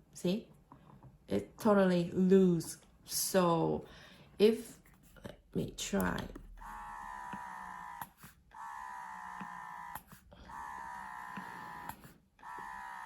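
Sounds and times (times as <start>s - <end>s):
breast pump motor whirring: 6.0s - 13.0s.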